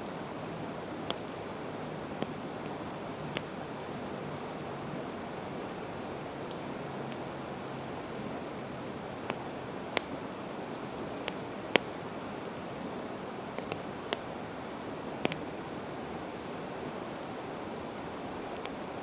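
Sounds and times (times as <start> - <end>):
river rushing: 0.6 - 9.8
high regular chirping: 2.1 - 9.5
campfire crackling and popping: 2.1 - 10.3, 13.5 - 14.3.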